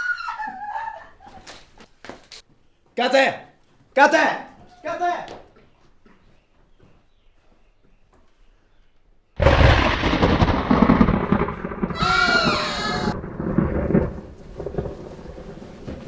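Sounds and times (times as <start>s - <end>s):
thunderclap rumbling: 9.4s - 16.0s
high-pitched cry: 12.0s - 13.2s.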